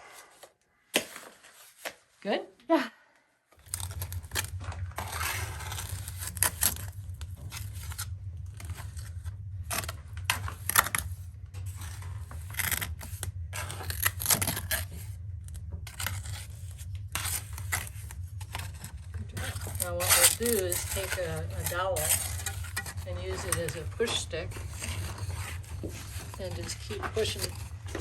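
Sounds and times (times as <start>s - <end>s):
steady low hum: 3.4s - 28.0s
trowel scraping wet mortar: 15.9s - 28.0s.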